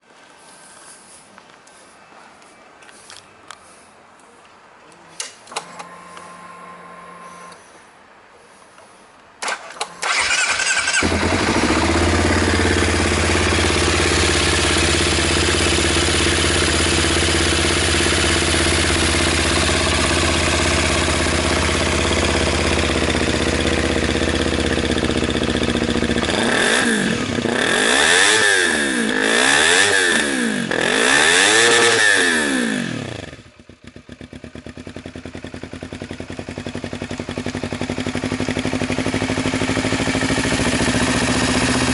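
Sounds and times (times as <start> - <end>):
motorcycle starter cranking: 9.4 - 12.3
motorcycle engine revving: 9.4 - 41.9
motorcycle engine idling: 10.0 - 28.0, 31.6 - 41.9.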